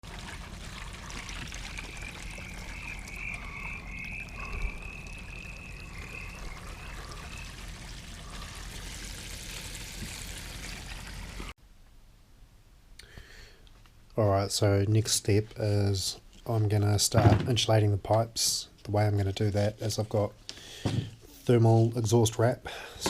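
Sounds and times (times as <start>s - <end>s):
steady low hum: 0.1s - 9.6s
pulsing trill-like call: 1.8s - 7.6s.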